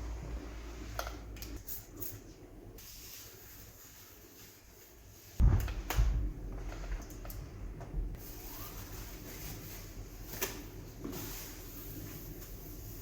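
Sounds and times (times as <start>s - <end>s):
heavy thump: 5.4s - 6.7s.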